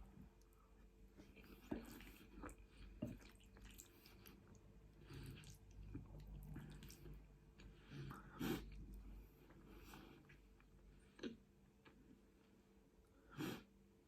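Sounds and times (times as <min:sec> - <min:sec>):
person chewing: 0:01.2 - 0:12.0.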